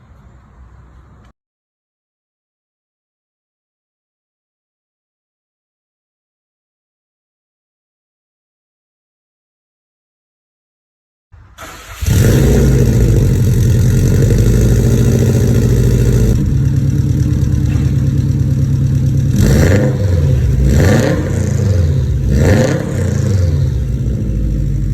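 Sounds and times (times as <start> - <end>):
car engine cranking: 11.6 - 24.9
car engine idling and revving: 11.8 - 24.9.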